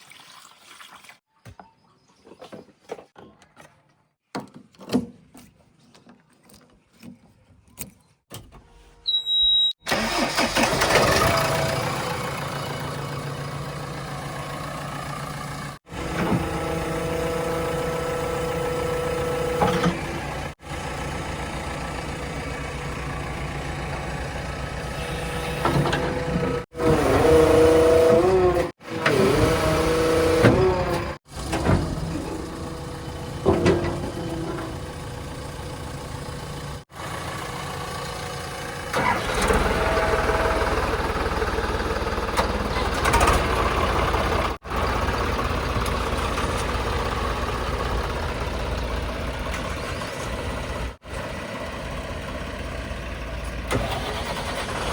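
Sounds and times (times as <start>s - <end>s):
heavy vehicle engines revving: 9.9s - 37.2s, 38.9s - 54.9s.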